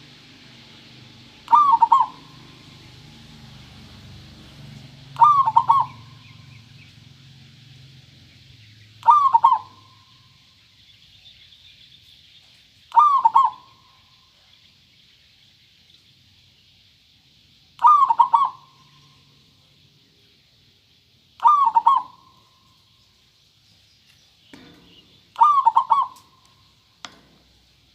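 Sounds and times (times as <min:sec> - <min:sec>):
dove cooing: 0:01.4 - 0:02.8, 0:05.1 - 0:06.6, 0:09.0 - 0:10.1, 0:12.9 - 0:14.0, 0:17.8 - 0:19.3, 0:21.4 - 0:22.5, 0:24.6 - 0:26.5.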